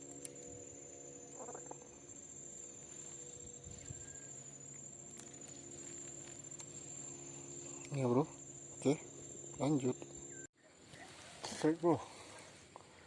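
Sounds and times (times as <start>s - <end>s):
faint low hum: 0.0s - 13.0s
insects chirring: 0.0s - 13.0s.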